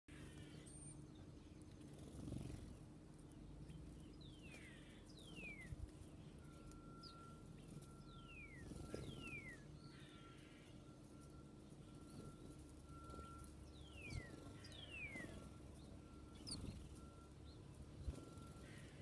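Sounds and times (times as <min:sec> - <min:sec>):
faint low steady hum: 0:00.1 - 0:19.0
songbird whistling falling notes: 0:06.4 - 0:10.3, 0:11.2 - 0:18.7.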